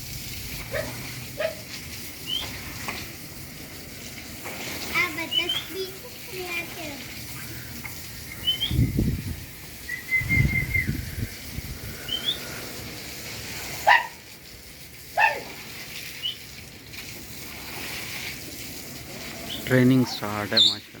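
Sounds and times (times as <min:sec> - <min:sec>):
small birds chirping: 0:02.2 - 0:02.6, 0:05.0 - 0:06.0, 0:07.2 - 0:09.2, 0:09.8 - 0:12.6, 0:20.4 - 0:20.9.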